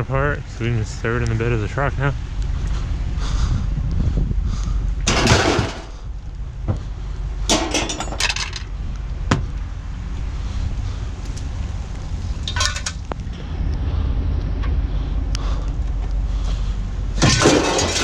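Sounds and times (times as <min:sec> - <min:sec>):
steady low rumble: 0:00.0 - 0:18.0
scrap metal clattering into truck bed: 0:05.1 - 0:06.0, 0:07.5 - 0:08.6, 0:17.2 - 0:18.0.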